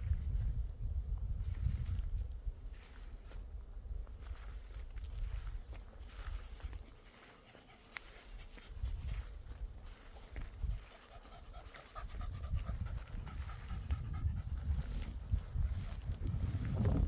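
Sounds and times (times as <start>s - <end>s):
walking rumble: 1.1s - 17.0s
person panting: 6.9s - 16.1s.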